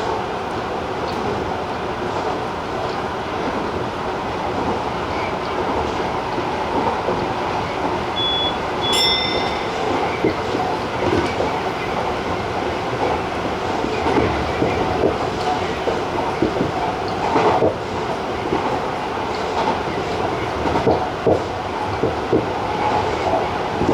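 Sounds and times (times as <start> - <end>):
train wheels rumbling on rail: 0.0 - 23.9
high wheel squeal: 8.1 - 10.8.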